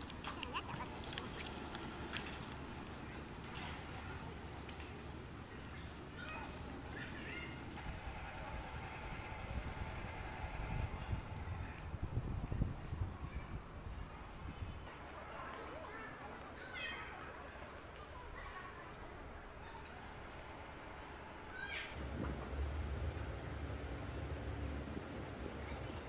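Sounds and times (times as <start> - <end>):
birds chirping: 0.3 - 17.8.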